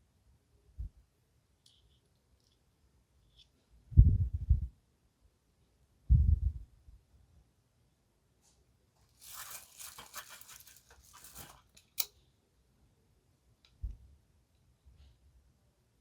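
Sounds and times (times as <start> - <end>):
packaging crinkling: 9.0 - 12.0.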